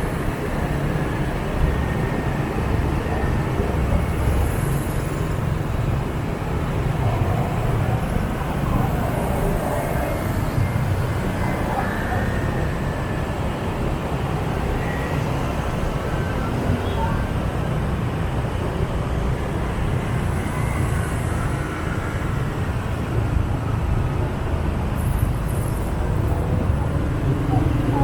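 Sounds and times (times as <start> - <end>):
motor scooter engine and road rumble: 0.0 - 28.0
surrounding motorbike traffic: 0.0 - 28.0.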